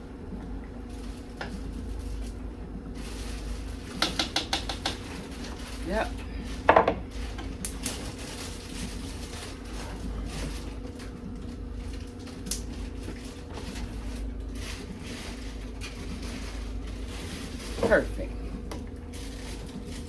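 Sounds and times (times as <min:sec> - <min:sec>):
kitchen utensils clicking and knocking: 0:04.0 - 0:05.1.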